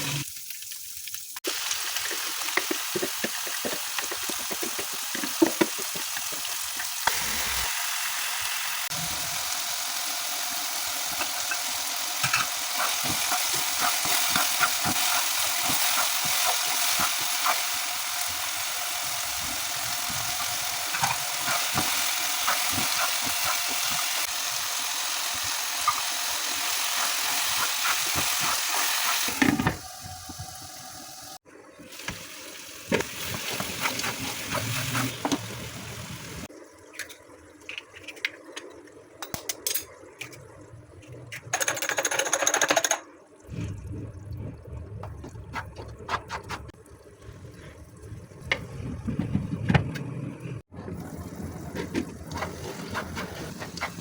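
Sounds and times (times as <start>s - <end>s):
food sizzling in a pan: 0.0s - 36.5s.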